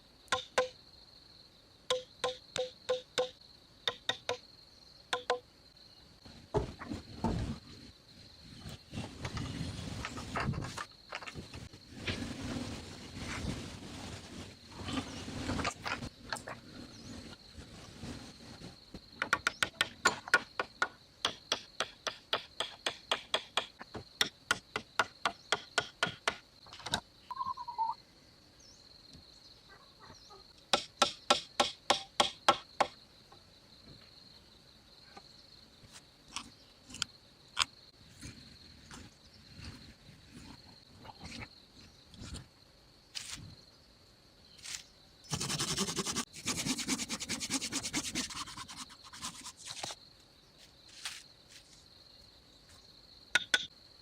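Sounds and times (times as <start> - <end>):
insect buzzing: 44.4 - 52.2.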